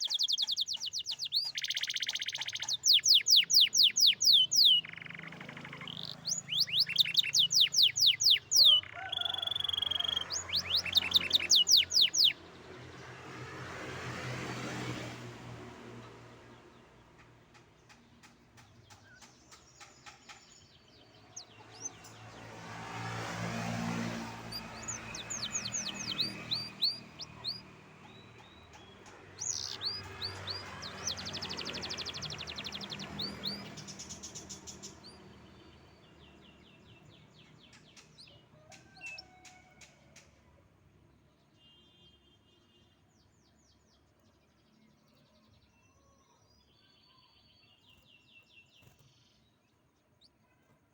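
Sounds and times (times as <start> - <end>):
canary singing: 0.0 - 12.6, 17.2 - 39.5.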